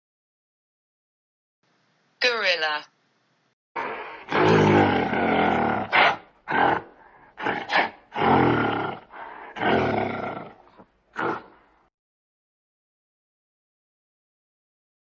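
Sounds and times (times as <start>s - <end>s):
gorilla roaring and grunting: 3.8s - 11.8s.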